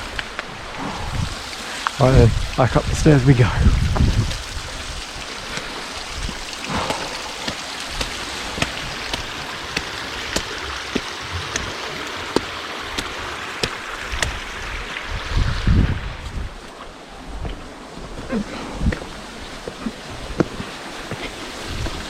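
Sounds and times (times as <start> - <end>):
stream rushing: 0.0 - 22.0
low thump: 6.7 - 8.8.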